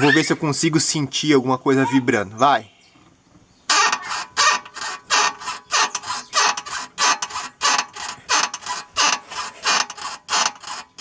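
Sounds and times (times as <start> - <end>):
car suspension squeaking: 3.1 - 11.0.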